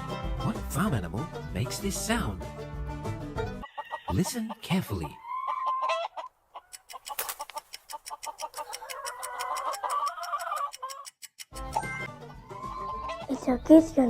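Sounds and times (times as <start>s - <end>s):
chickens clucking: 3.4s - 14.0s.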